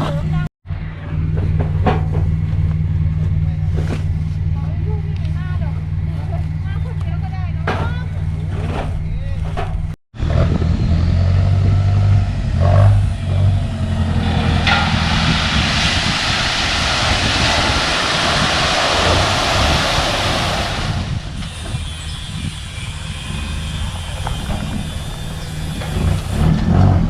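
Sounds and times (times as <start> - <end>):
large vehicle engine running: 0.0 - 27.0
loud hiss: 14.0 - 26.4.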